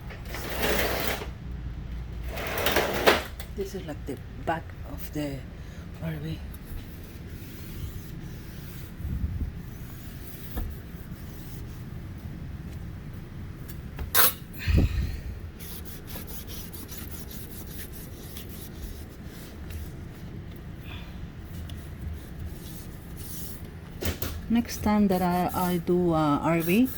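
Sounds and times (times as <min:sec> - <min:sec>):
rubbing and handling noises: 0:06.5 - 0:12.8, 0:15.6 - 0:20.7, 0:21.4 - 0:23.9, 0:24.5 - 0:26.9.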